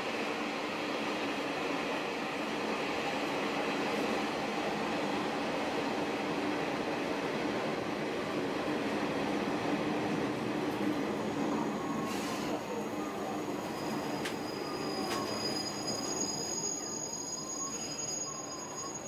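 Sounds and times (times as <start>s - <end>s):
train wheels and engine rumbling: 0.1s - 18.2s
high-pitched brake squeal: 13.5s - 19.0s.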